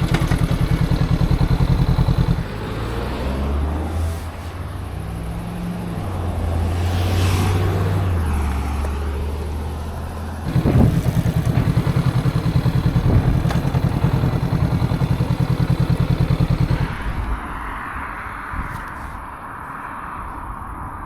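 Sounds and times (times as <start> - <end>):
motorcycle engine idling: 0.0 - 2.8, 9.4 - 17.0.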